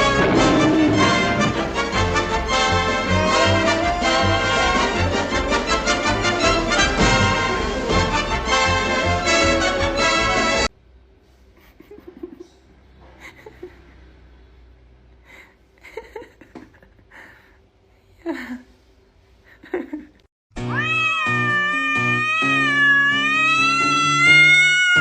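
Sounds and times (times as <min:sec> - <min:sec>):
background music: 0:00.0 - 0:10.7
cat meowing: 0:03.2 - 0:05.6, 0:20.6 - 0:25.0.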